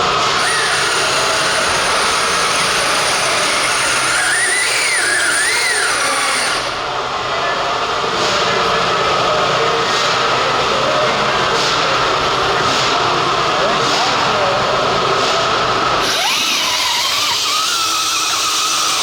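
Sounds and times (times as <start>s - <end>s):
electric motors whining: 0.0s - 7.0s, 16.0s - 19.0s.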